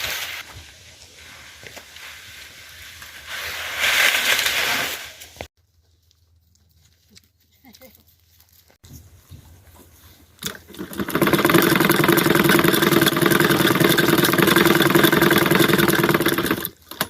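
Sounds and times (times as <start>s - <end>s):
small engine running: 10.8s - 16.8s.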